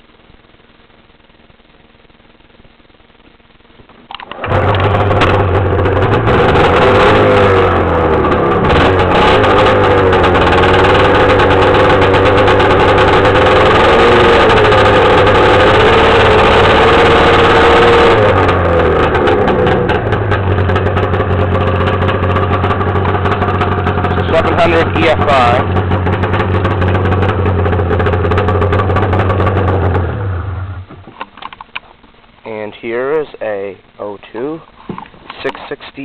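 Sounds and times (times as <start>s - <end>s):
snowmobile engine starting and idling: 4.1s - 31.8s.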